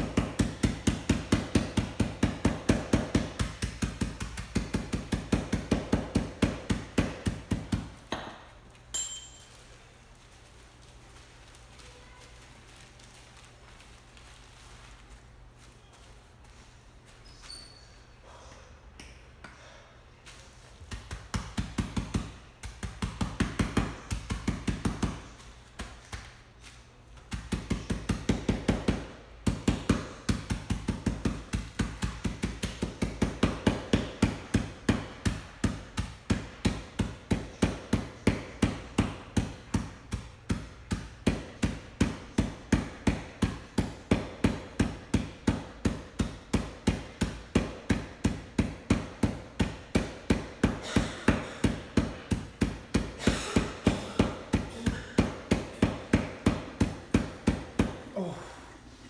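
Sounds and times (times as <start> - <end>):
pounding blows smashing pretzels: 27.3 - 58.1.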